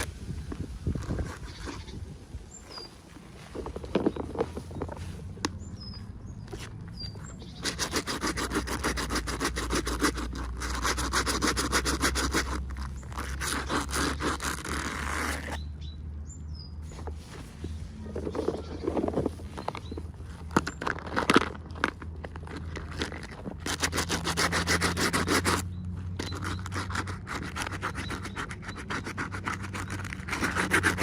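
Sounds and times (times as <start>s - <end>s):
packaging being scratched open: 0.0s - 2.1s, 7.4s - 15.6s, 18.3s - 31.0s
rasping scrape: 0.0s - 5.3s, 6.4s - 15.7s, 16.8s - 31.0s.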